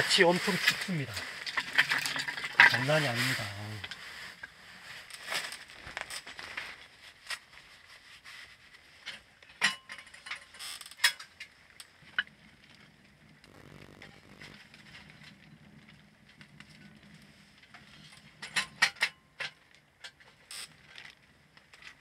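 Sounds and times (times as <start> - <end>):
faint low hum: 13.4 - 14.6.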